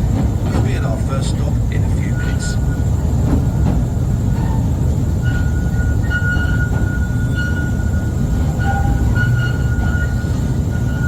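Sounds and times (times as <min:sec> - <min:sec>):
train wheels rumbling on rail: 0:00.0 - 0:11.0
high-pitched wheel squeals: 0:04.3 - 0:11.0.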